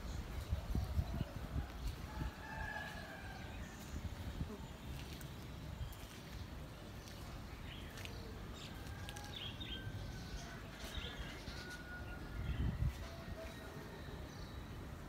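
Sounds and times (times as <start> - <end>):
small birds chirping: 0.0 - 11.8.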